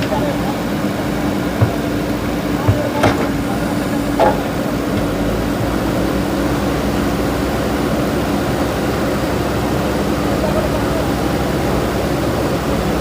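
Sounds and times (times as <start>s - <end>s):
diesel engine running: 0.0s - 13.0s
short knock: 1.5s - 3.5s.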